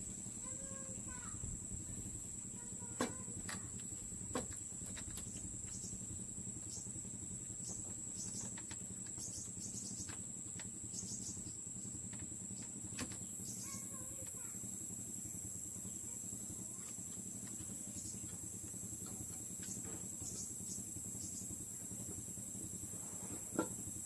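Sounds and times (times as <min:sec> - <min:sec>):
crickets droning: 0:00.0 - 0:24.0
bird chirp: 0:04.4 - 0:14.0, 0:19.1 - 0:21.6.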